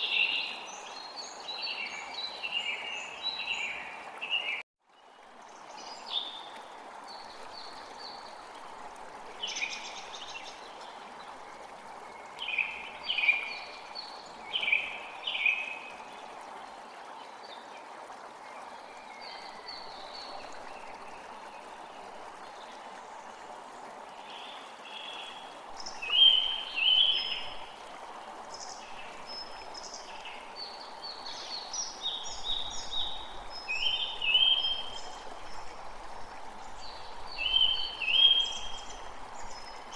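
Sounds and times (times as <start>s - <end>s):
flowing stream water: 0.0s - 39.9s.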